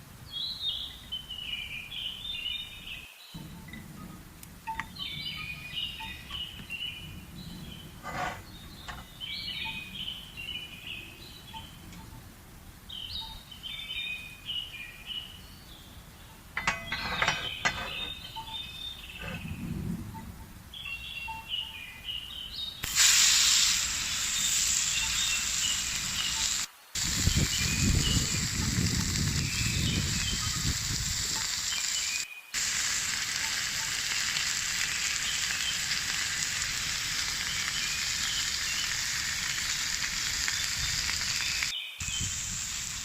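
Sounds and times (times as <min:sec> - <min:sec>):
loud steady hiss: 0:00.0 - 0:43.0
songbird singing warbled phrases: 0:08.5 - 0:12.2.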